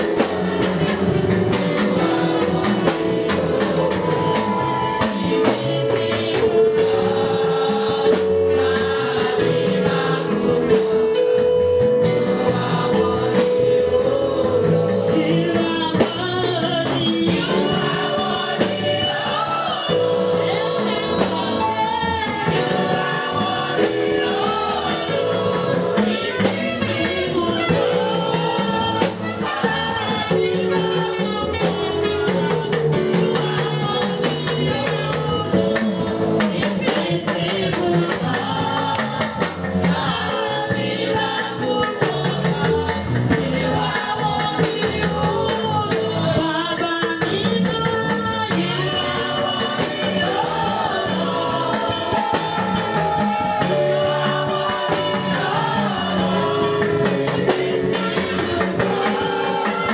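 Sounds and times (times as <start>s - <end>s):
percussion hits: 0.0s - 11.1s
group of voices singing: 0.0s - 59.9s
instrumental backing: 0.0s - 59.9s.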